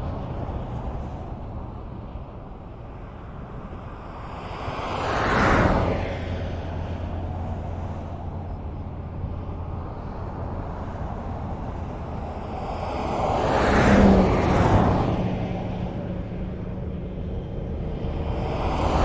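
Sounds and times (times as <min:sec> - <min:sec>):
highway road noise hum: 0:00.0 - 0:19.0
vehicle passing close by: 0:09.6 - 0:19.0.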